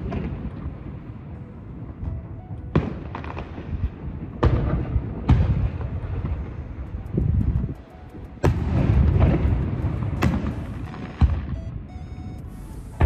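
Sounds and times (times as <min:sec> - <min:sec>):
low rumble: 0:05.6 - 0:13.0
firework cracks: 0:08.1 - 0:11.6.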